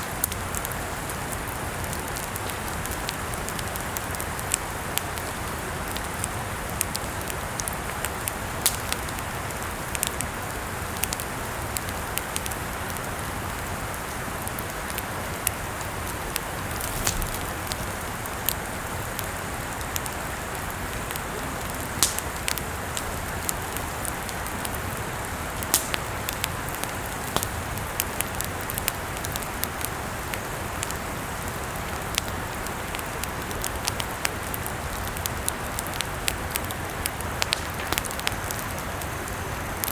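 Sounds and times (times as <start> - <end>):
campfire crackling and popping: 0.0 - 39.9
hiss of burning: 13.0 - 39.9.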